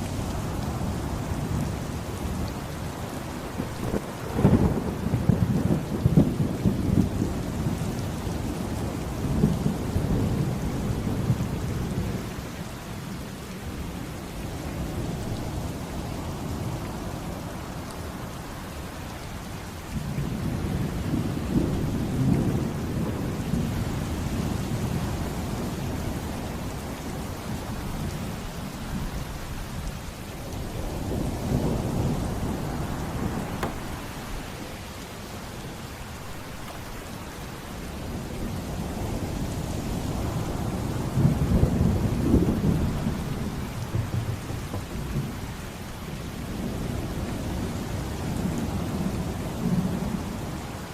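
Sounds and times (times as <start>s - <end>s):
heavy rain: 0.0s - 50.9s.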